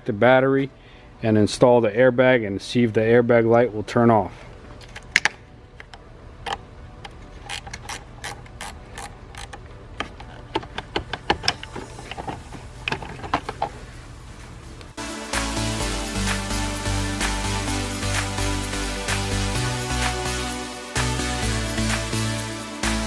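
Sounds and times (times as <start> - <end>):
background music: 2.7 - 23.0
ratchet wrench clicking: 7.4 - 9.6.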